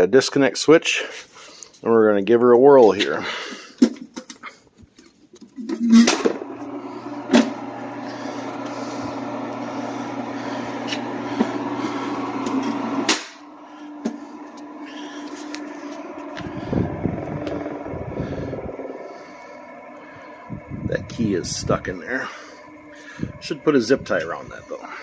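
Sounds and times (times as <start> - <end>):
electric motor humming: 5.6 - 25.0.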